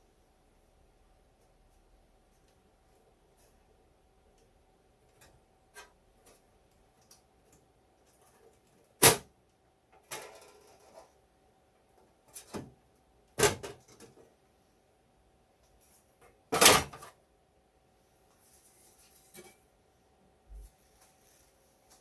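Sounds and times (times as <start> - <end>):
scraping rustle: 18.3 - 19.6, 20.6 - 22.0.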